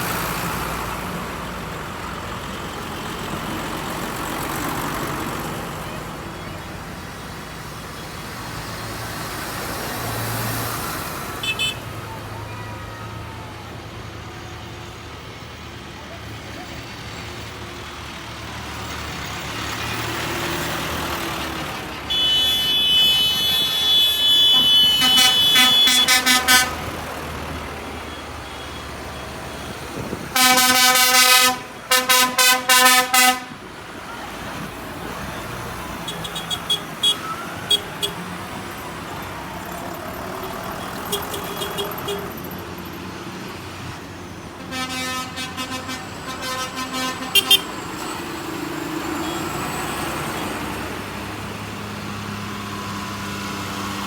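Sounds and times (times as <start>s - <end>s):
tractor engines driving past: 0.0s - 54.0s
tractor horns tooting: 11.3s - 13.3s, 20.6s - 42.6s, 44.4s - 48.4s, 49.1s - 50.8s.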